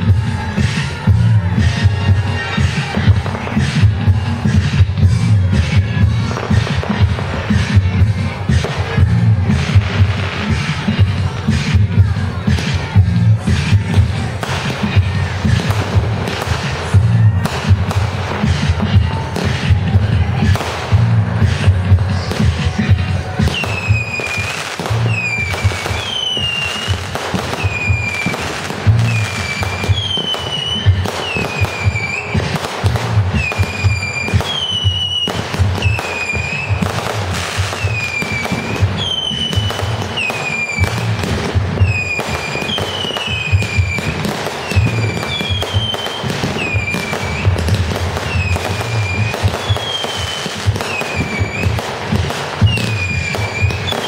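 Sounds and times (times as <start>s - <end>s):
fireworks bangs and crackles: 0.0s - 54.0s
music with bass beat: 0.0s - 54.0s
high dipping firework whistle: 23.4s - 54.0s.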